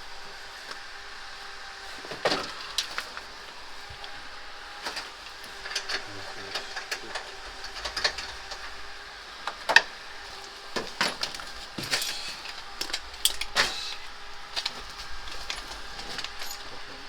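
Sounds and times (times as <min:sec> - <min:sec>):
metal tools clinking and scraping: 0:04.8 - 0:17.0.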